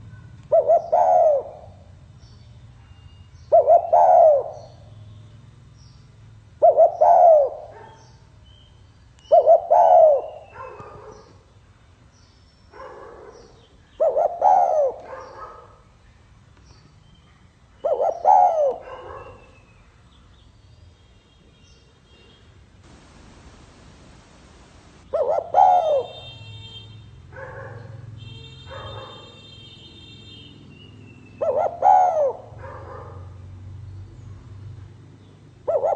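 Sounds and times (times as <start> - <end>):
dove cooing: 0.5 - 2.0, 3.5 - 4.8, 6.6 - 8.0, 9.3 - 11.3, 14.0 - 15.6, 17.8 - 19.4, 22.9 - 26.3, 31.4 - 33.1, 35.6 - 35.9.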